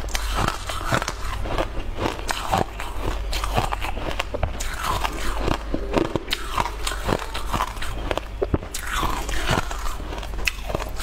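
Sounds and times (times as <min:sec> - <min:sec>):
low steady hum: 0:00.0 - 0:11.0
wet chewing clicks and smacks: 0:00.0 - 0:11.0.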